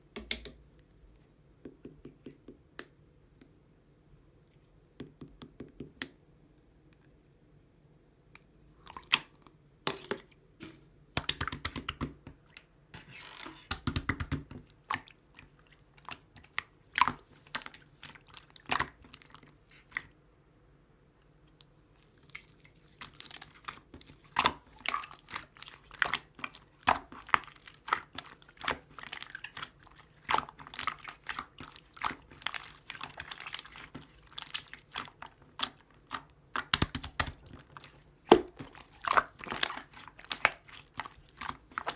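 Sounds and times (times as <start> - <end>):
slime squished by hand: 21.5 - 41.9.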